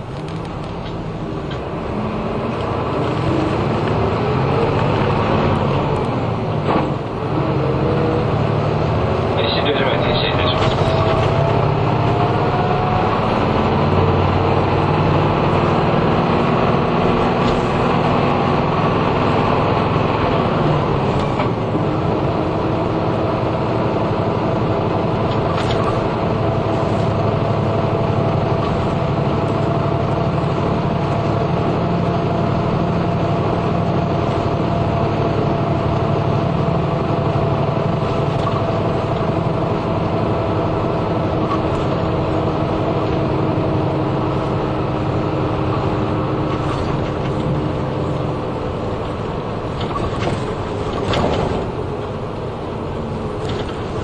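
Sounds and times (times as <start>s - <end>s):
bus engine: 0.0s - 54.0s
road noise: 0.0s - 54.0s.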